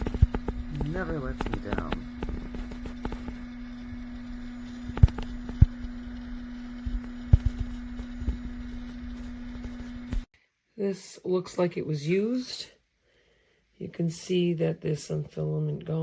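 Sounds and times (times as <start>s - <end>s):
steady hum with low rumble: 0.0s - 10.3s.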